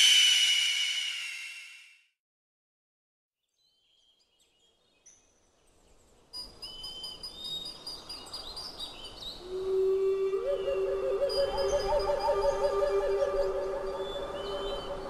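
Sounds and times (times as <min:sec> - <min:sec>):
birds chirping and whistling: 0:08.9 - 0:15.0
steady musical tone: 0:10.3 - 0:15.0.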